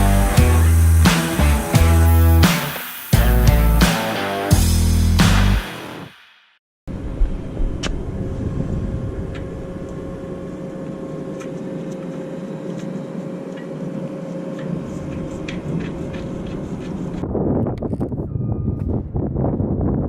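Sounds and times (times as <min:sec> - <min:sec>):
machine running with whine: 0:00.0 - 0:06.1.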